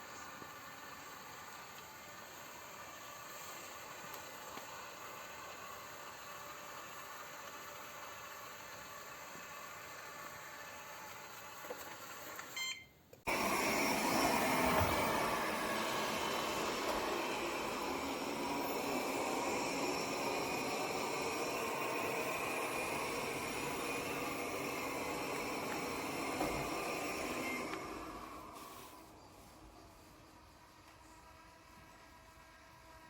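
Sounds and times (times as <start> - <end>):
robot vacuum whirring: 0.0 - 12.7, 13.3 - 33.0
short beeps: 12.6 - 12.9.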